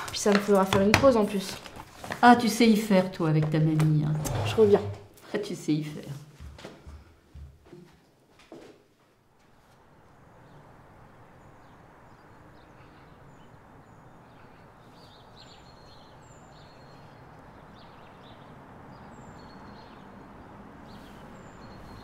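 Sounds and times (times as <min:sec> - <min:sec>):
small birds chirping: 0:09.8 - 0:22.0.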